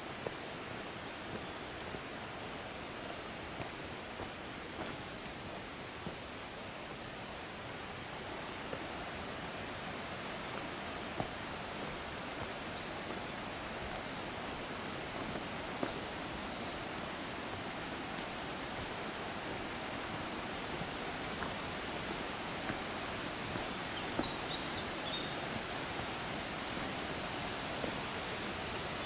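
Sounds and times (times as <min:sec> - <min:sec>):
flowing water rushing: 0:00.0 - 0:29.0
bird chirping: 0:23.9 - 0:25.4.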